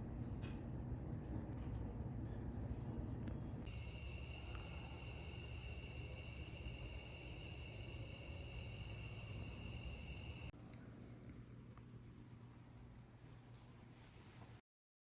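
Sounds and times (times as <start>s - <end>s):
high-pitched insect trill: 3.7s - 10.5s.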